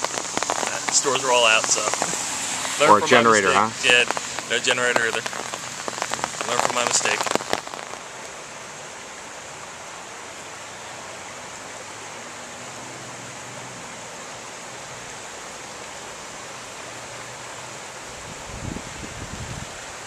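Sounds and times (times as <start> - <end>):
water rushing: 0.0 - 20.0.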